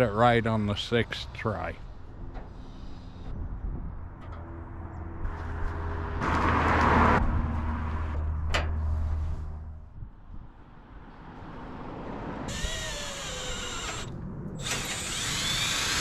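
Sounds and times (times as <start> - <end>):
electric drill drilling sheet metal: 12.5 - 16.0.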